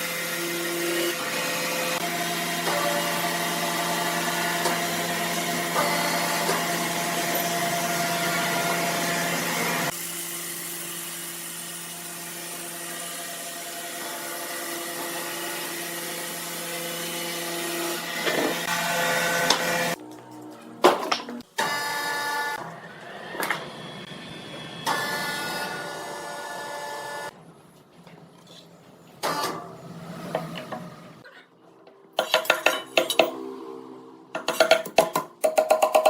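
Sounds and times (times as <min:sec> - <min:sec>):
sawmill machinery humming: 0:00.0 - 0:20.7.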